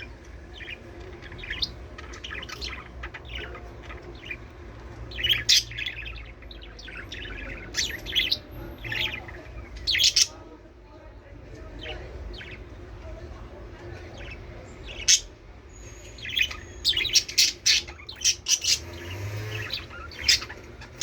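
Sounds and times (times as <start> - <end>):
budgerigars chirping and warbling: 0.0 - 10.7, 11.4 - 21.0.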